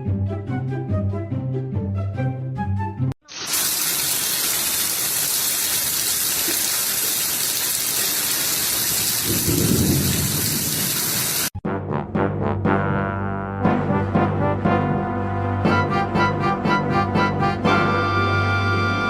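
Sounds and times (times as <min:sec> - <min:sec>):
background music: 0:00.0 - 0:03.1, 0:11.6 - 0:19.0
heavy rain hissing: 0:03.3 - 0:11.5
low thunder rumble: 0:09.2 - 0:11.4.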